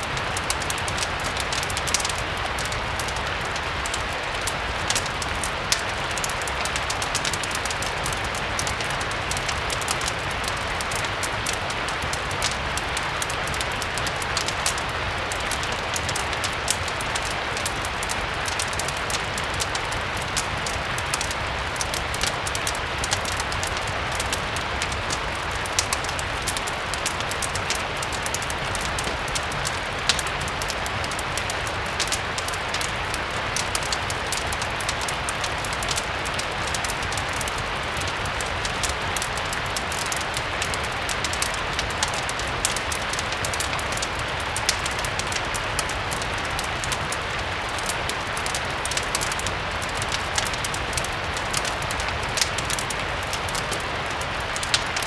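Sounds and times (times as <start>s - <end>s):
fireplace crackling: 0.0s - 55.0s
steady rain hiss: 0.0s - 55.0s.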